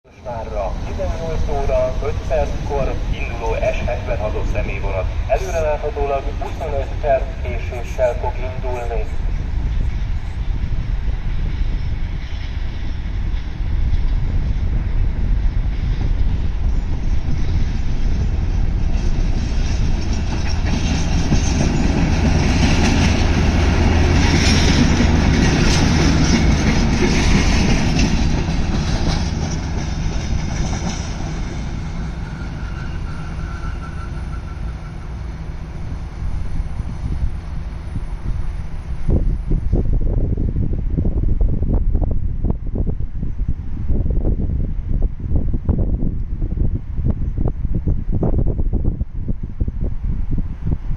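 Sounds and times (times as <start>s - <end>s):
train rumble: 0.0s - 50.9s
wheels clacking over rail joints: 18.8s - 35.0s
wheel squeal: 32.2s - 35.2s.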